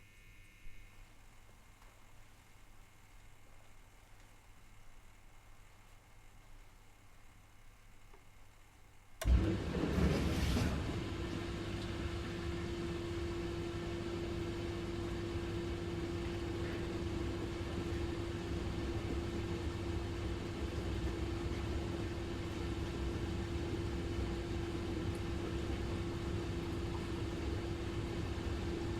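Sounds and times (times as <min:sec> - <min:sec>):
dishwasher running: 0:09.2 - 0:28.9.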